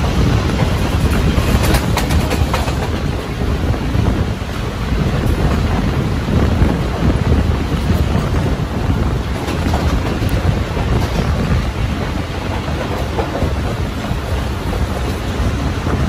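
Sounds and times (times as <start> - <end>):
passenger train rumble: 0.0 - 16.0
wind buffeting microphone: 0.0 - 16.0.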